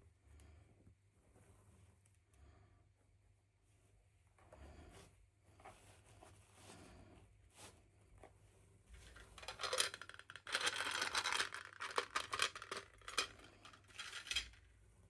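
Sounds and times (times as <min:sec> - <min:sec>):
plastic packaging crinkling: 0:09.1 - 0:14.6.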